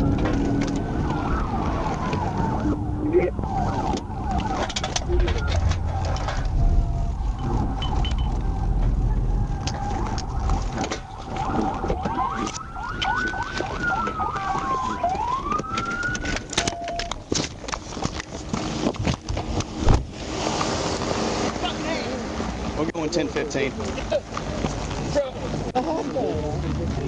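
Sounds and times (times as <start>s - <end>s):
police siren wailing: 0.0s - 17.3s
vehicle low rumble: 0.0s - 27.0s
steady tone: 2.8s - 11.8s.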